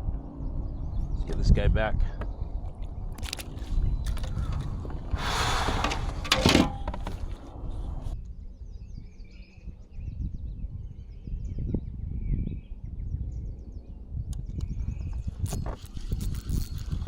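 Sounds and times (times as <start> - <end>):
birds chirping: 0.0 - 10.2
kayak handling rustling: 3.2 - 7.8.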